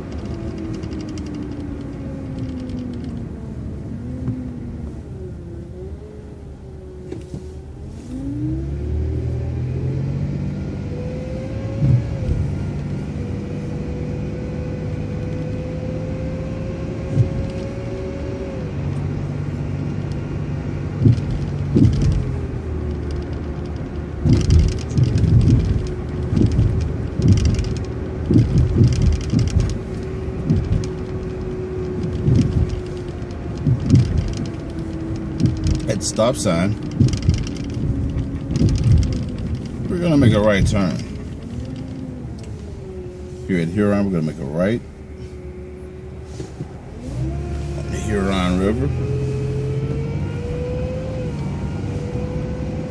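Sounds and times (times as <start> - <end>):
bus engine rumble with whine: 0.0 - 52.9
sharp knocks and rattles: 20.9 - 42.1.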